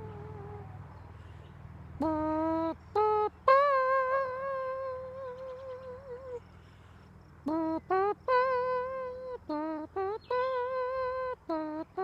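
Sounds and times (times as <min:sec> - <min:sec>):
woman humming: 0:00.0 - 0:00.8.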